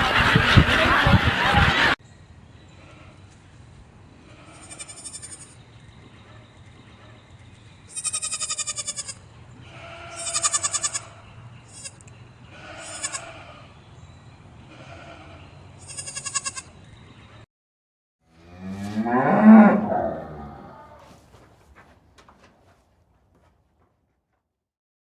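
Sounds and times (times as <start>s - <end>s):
sheep or goats bleating: 4.2s - 5.5s, 7.9s - 13.7s, 14.7s - 16.7s.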